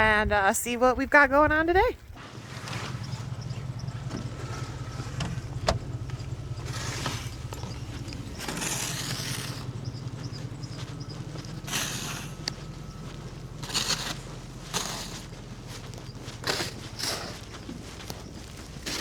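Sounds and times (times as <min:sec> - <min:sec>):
small motor humming: 0:02.2 - 0:19.0.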